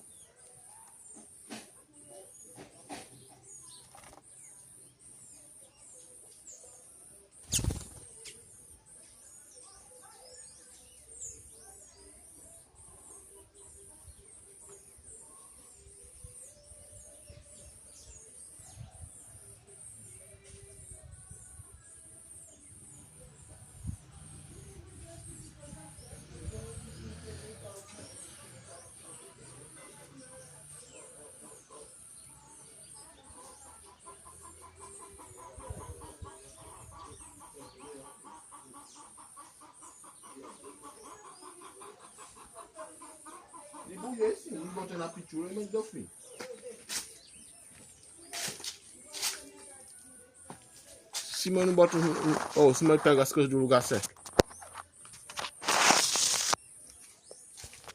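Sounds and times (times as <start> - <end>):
small birds chirping: 0.0 - 57.9
chickens clucking: 33.4 - 45.4.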